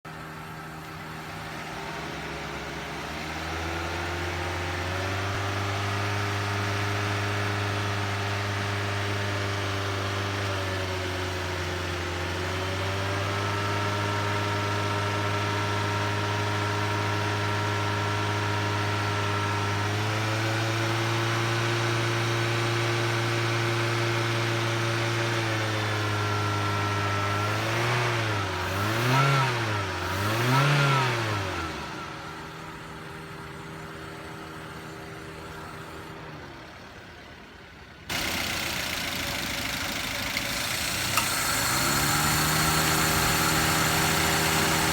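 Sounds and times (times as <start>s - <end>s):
car engine idling: 0.1s - 13.2s, 31.4s - 44.9s.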